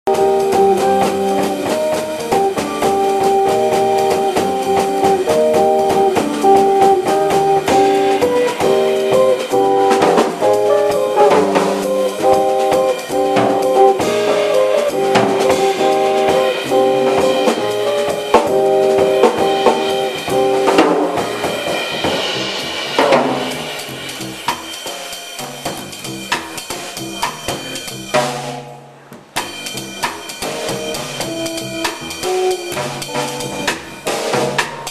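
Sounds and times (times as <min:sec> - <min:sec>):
drum kit playing: 0:00.0 - 0:34.9
saxophone melody: 0:00.1 - 0:21.9, 0:31.2 - 0:34.0
small jazz band playing: 0:00.1 - 0:34.9.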